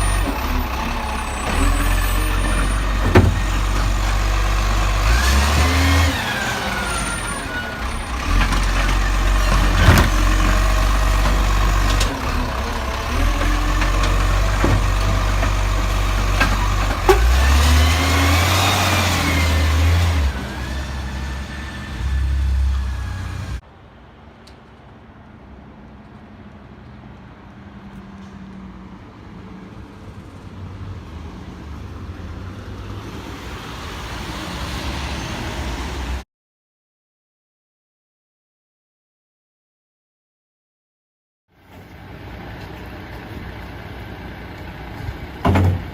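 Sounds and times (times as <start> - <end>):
garbage truck diesel engine: 0.0 - 23.6, 41.6 - 45.9
quiet vehicle sound: 18.6 - 34.0, 41.6 - 45.9.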